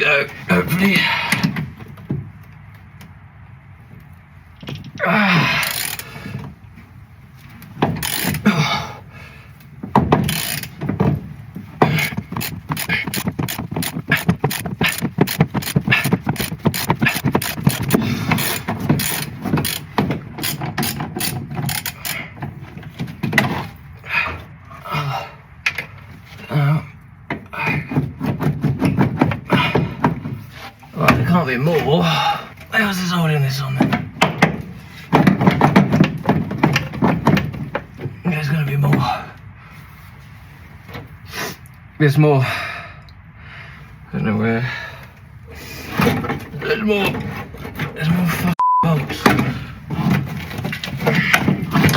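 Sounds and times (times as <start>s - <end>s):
ratchet spanner clicking: 5.6s - 6.1s, 8.0s - 8.4s, 10.3s - 10.8s, 12.0s - 22.2s
metal scrapes and knocks: 49.1s - 51.9s.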